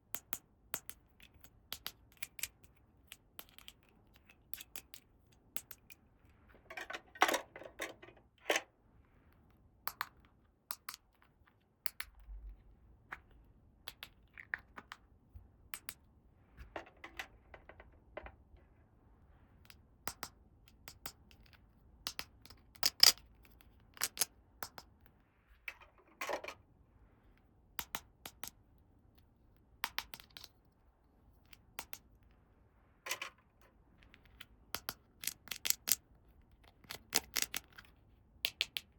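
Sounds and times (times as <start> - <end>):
plastic toy pieces clicking: 0.2 - 5.0, 22.1 - 23.2, 24.0 - 24.9, 34.1 - 36.0, 36.7 - 37.9.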